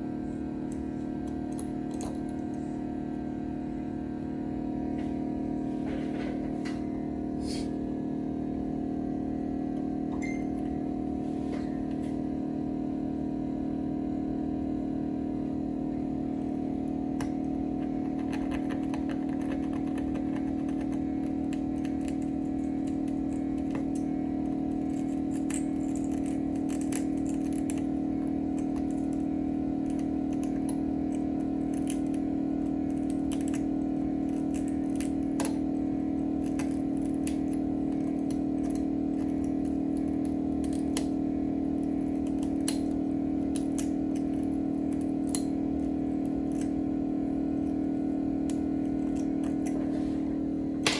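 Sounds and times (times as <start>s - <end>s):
machine hum: 0.0s - 50.9s
small tools clicking and tapping: 0.7s - 2.7s, 17.2s - 35.7s, 36.4s - 41.2s, 41.8s - 46.8s.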